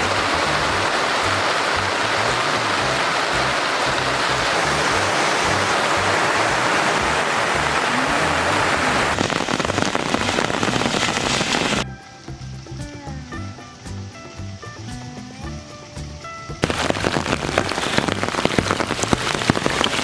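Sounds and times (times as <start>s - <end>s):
heavy rain falling: 0.0s - 11.9s, 16.6s - 20.0s
background music: 0.0s - 20.0s.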